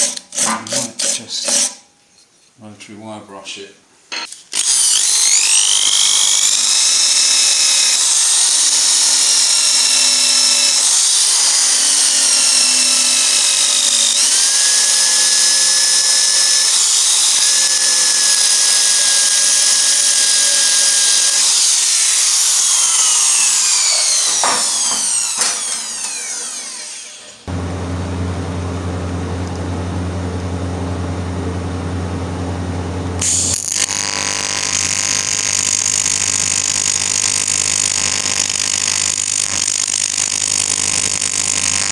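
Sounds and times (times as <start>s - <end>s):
rotary wire brush scratching metal: 0.0s - 1.8s.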